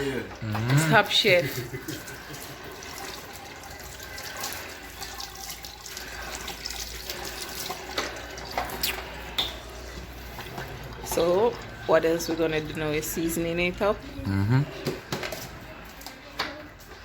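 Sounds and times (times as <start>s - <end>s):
water running and splashing: 0.0s - 13.0s.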